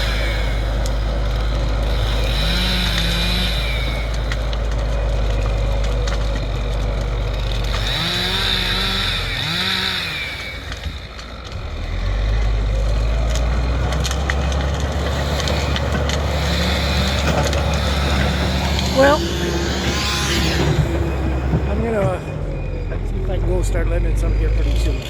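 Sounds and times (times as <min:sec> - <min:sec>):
heavy diesel engine running: 0:00.0 - 0:25.0
cracks and snaps: 0:02.9 - 0:07.9, 0:10.4 - 0:18.9.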